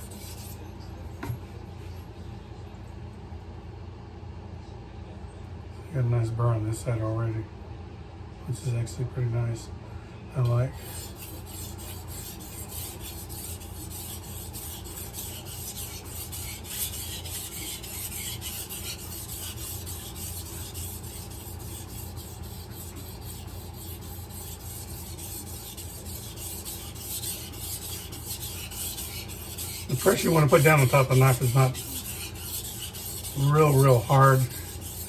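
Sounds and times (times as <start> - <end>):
knife scraping on whetstone: 0.0 - 0.6, 10.7 - 35.0.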